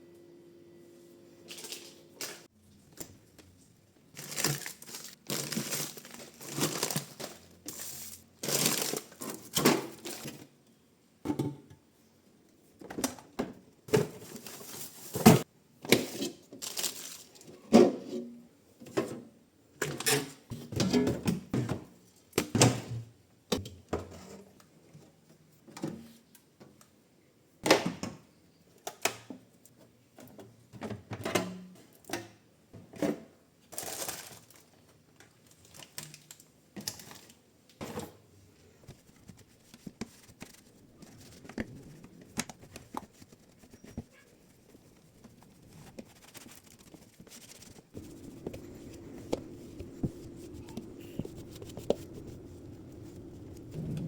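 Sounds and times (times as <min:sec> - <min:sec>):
plastic crinkling and rustling: 0:01.5 - 0:10.5, 0:16.6 - 0:17.6, 0:33.7 - 0:37.4, 0:38.8 - 0:54.0.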